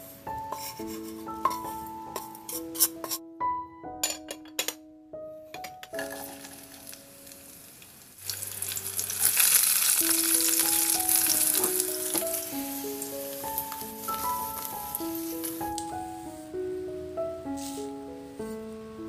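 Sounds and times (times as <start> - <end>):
chilies and garlic sizzling in oil: 5.9 - 16.3.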